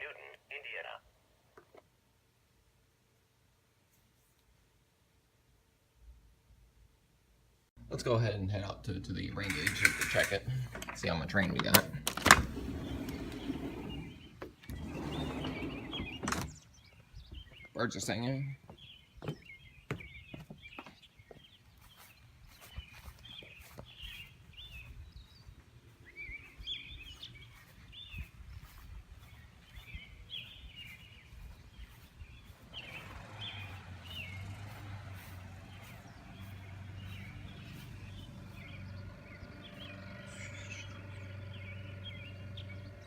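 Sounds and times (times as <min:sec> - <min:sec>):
birds singing and chirping: 0:09.1 - 0:43.0
steady low hum: 0:33.4 - 0:43.0.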